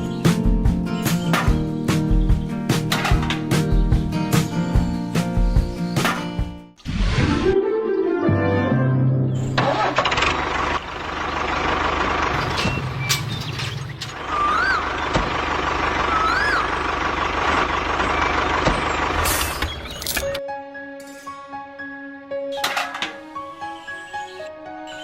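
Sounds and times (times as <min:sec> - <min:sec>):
truck engine: 0:09.4 - 0:20.4
rising-and-falling chirps: 0:14.2 - 0:15.1, 0:16.0 - 0:17.0.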